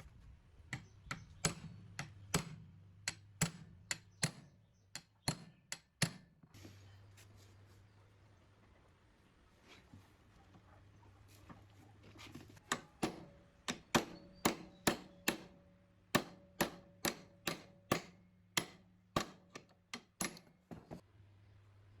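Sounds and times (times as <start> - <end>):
hammer tapping on metal: 0.7 - 6.3, 12.6 - 21.0.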